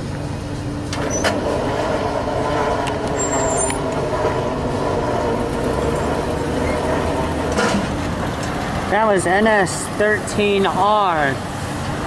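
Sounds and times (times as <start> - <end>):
faint whining wheel tones: 0.0 - 12.0
train wheels rumbling on rail: 0.0 - 12.0.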